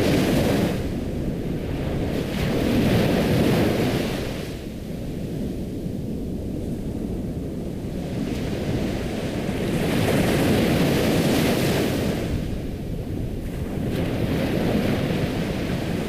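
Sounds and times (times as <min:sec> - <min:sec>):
ocean waves on shore: 0:00.0 - 0:16.0.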